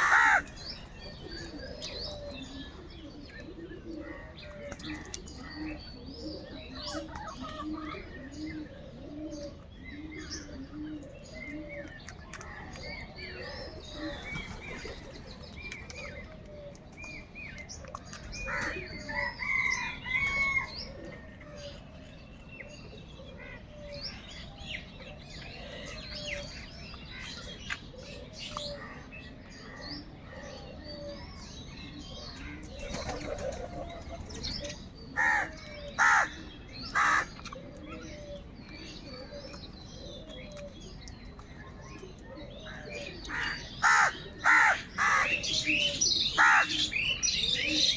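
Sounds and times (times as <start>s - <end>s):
crows cawing: 0.0s - 0.7s, 35.2s - 37.3s, 43.3s - 45.4s, 46.3s - 46.9s
small birds chirping: 0.0s - 47.9s.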